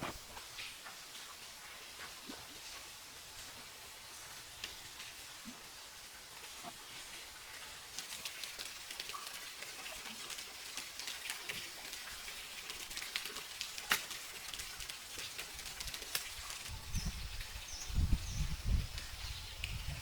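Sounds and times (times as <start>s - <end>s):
light crackles and clicks: 12.9s - 16.7s.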